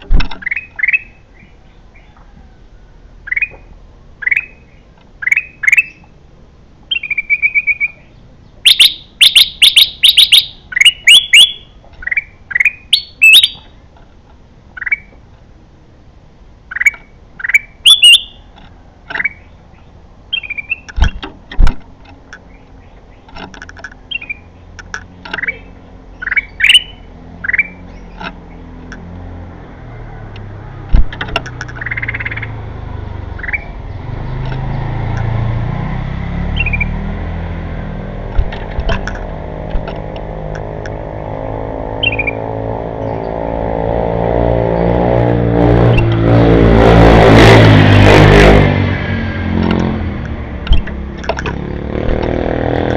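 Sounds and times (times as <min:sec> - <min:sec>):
bird chirping: 0:00.0 - 0:02.5, 0:03.2 - 0:06.2, 0:06.9 - 0:13.9, 0:14.7 - 0:15.2, 0:16.6 - 0:21.2, 0:22.3 - 0:29.1, 0:31.5 - 0:32.6, 0:33.2 - 0:35.2, 0:36.4 - 0:37.2, 0:39.3 - 0:43.7
sharp clicks: 0:30.3 - 0:32.0.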